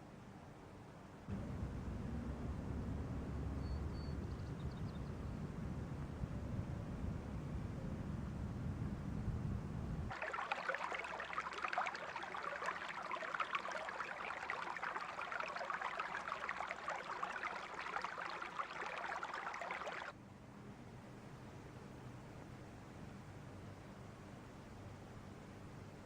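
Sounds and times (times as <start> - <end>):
stream babbling: 10.1 - 20.2.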